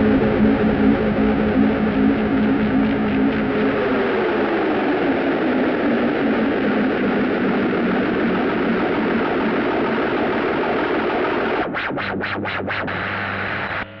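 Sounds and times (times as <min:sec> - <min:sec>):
held low synth note: 0:00.0 - 0:03.9
pulsing synthesizer noise: 0:00.0 - 0:14.0.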